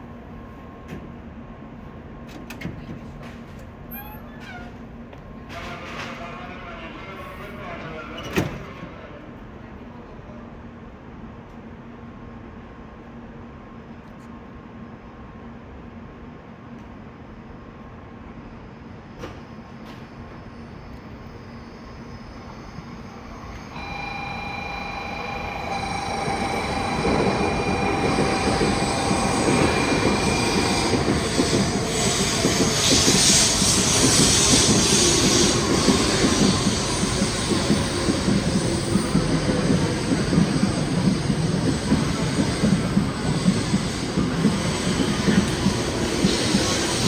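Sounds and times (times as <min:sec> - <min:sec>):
train rushing past: 0:18.2 - 0:47.0
high whining tones: 0:20.8 - 0:47.0.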